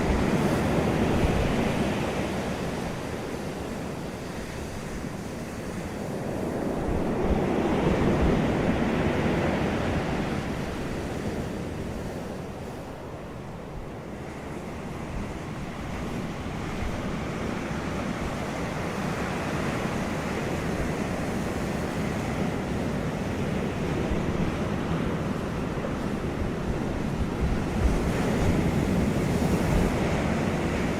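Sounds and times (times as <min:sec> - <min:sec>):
wind blowing: 0:15.2 - 0:30.9.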